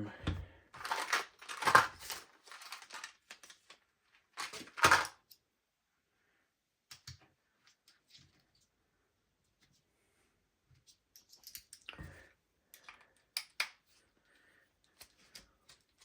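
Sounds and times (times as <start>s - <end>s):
plastic parts clattering: 0.3s - 5.4s, 11.1s - 12.0s
pistol parts clicking: 11.1s - 11.9s, 12.7s - 13.8s.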